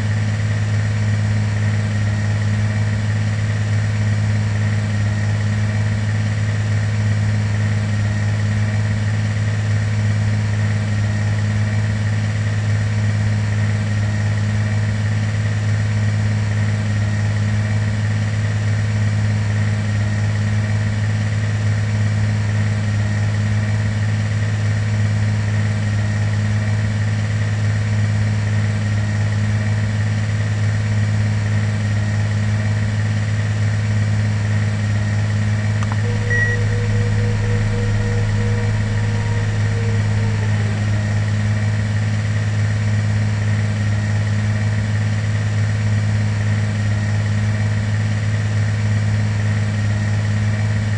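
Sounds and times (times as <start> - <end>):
airliner cabin drone: 35.0 - 44.7
faint high tone: 35.8 - 43.2.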